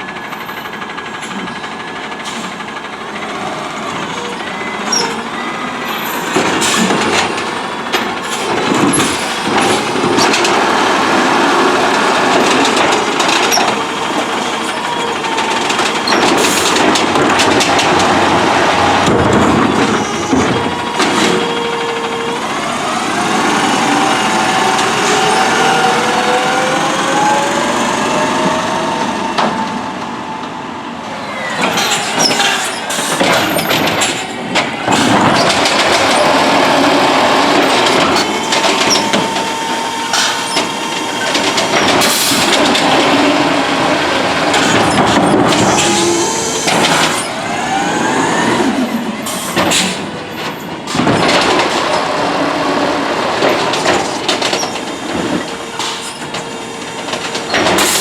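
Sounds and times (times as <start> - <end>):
garbage truck engine whining: 0.0 - 58.0.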